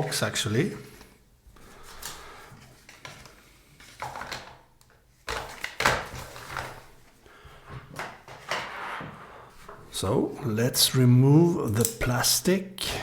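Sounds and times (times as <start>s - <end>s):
cardboard and plastic rustling: 1.7s - 8.7s.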